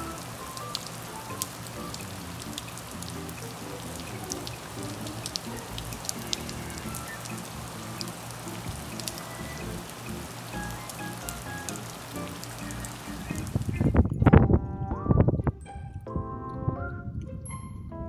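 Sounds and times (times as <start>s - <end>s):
drops ticking close by: 0.0s - 13.7s
rain on wet pavement: 0.0s - 13.8s.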